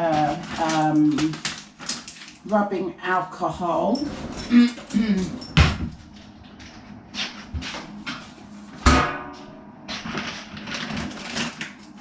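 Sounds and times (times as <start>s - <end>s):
plastic packaging rustling: 0.0s - 2.6s, 9.9s - 12.0s.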